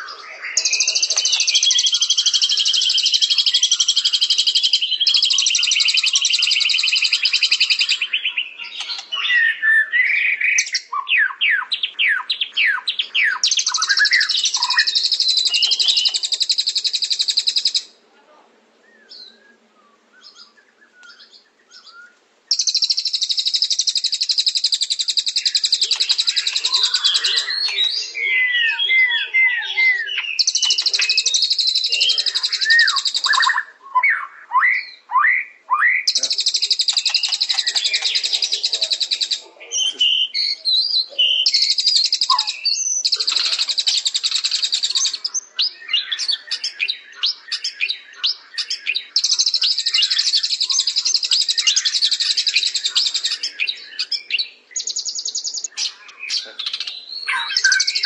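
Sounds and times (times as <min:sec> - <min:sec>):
whistled notes and chirps: 0:19.0 - 0:46.8, 0:57.2 - 0:58.0
songbird buzzy trills: 0:22.5 - 0:33.8, 0:36.0 - 0:58.0.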